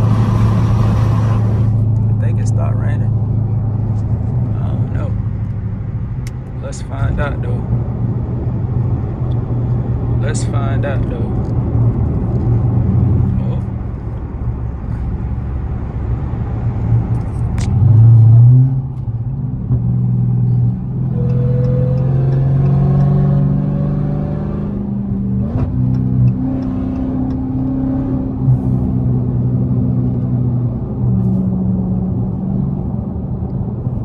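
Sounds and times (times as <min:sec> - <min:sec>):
road and tyre noise: 0:00.0 - 0:34.0
car engine accelerating: 0:07.8 - 0:34.0.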